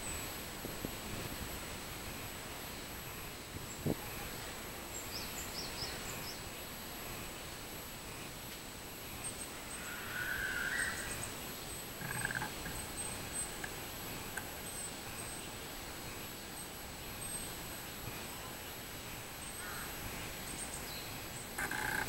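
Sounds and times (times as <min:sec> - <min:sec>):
outdoor background hiss: 0:00.0 - 0:22.0
short bird calls: 0:09.8 - 0:11.2.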